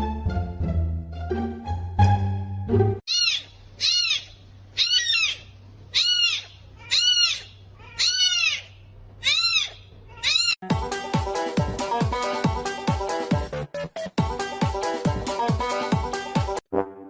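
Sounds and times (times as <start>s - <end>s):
music: 0.0s - 3.0s, 10.6s - 17.0s
animal high-pitched calls: 3.1s - 10.6s.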